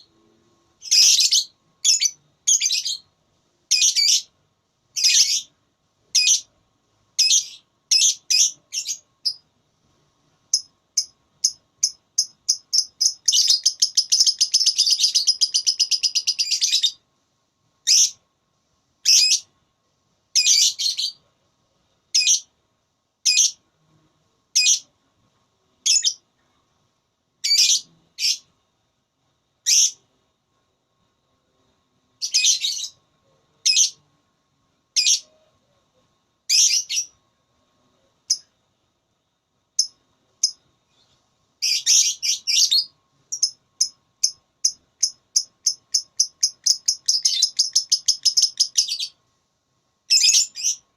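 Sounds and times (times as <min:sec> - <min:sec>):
lovebird chirping and trilling: 0:00.8 - 0:03.1, 0:03.7 - 0:04.3, 0:05.0 - 0:05.5, 0:06.1 - 0:06.5, 0:07.2 - 0:09.4, 0:10.5 - 0:17.0, 0:17.8 - 0:18.2, 0:19.0 - 0:19.5, 0:20.4 - 0:21.2, 0:22.1 - 0:22.5, 0:23.2 - 0:23.6, 0:24.6 - 0:24.9, 0:25.8 - 0:26.2, 0:27.4 - 0:28.4, 0:29.6 - 0:30.0, 0:32.2 - 0:33.0, 0:33.6 - 0:34.0, 0:35.0 - 0:35.3, 0:36.5 - 0:37.2, 0:41.6 - 0:49.2, 0:50.1 - 0:50.8.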